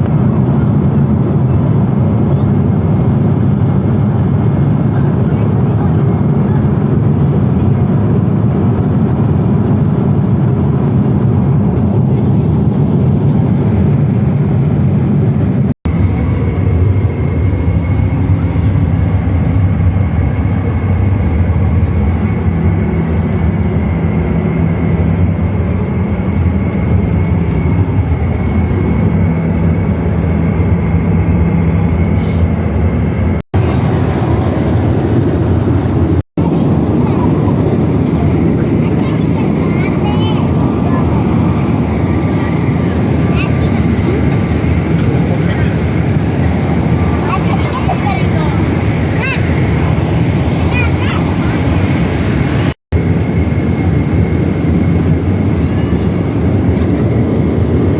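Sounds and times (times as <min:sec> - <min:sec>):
aircraft engine hum: 0:00.0 - 0:57.9
rushing air: 0:28.1 - 0:57.9.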